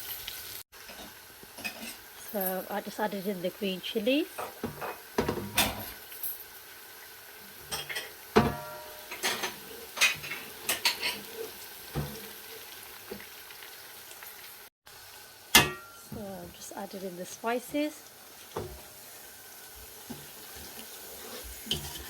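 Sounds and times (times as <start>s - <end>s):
faint sizzle: 0.0s - 22.0s
spoon scraping cooking pot: 20.1s - 22.0s.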